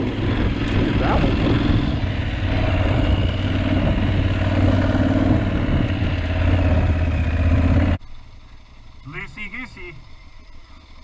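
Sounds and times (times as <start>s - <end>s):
wind noise on microphone: 0.0s - 7.2s
motorcycle engine running: 0.0s - 11.0s.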